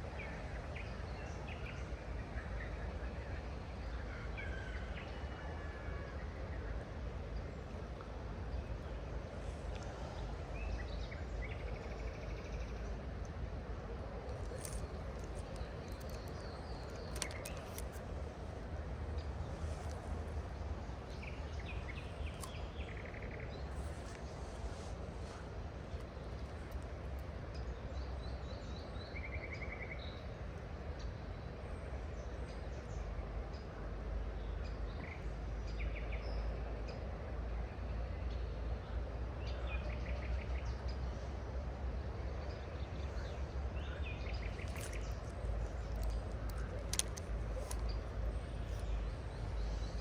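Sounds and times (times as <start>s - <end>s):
small birds chirping: 14.2s - 28.5s, 42.4s - 50.0s
sharp clicks: 14.3s - 18.2s, 44.5s - 48.9s.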